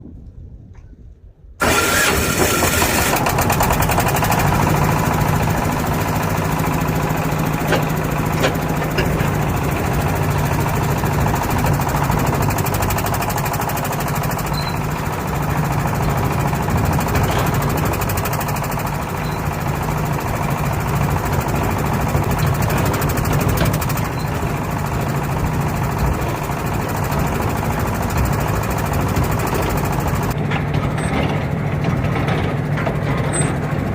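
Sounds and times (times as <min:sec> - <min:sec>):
boat engine droning: 0:01.6 - 0:33.9.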